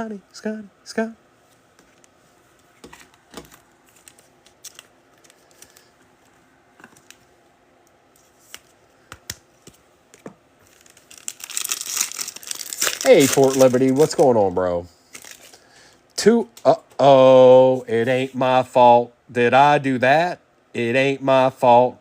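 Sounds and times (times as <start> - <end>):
trading cards clicking and tapping: 8.5 - 10.3
foil pack crinkling and tearing: 10.6 - 14.4, 15.1 - 15.6.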